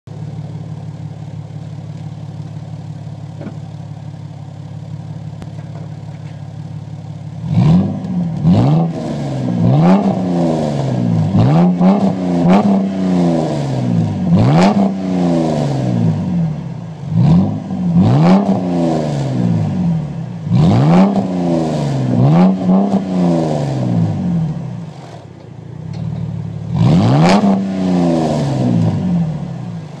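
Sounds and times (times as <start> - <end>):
car exhaust idling and revving: 0.1 - 30.0.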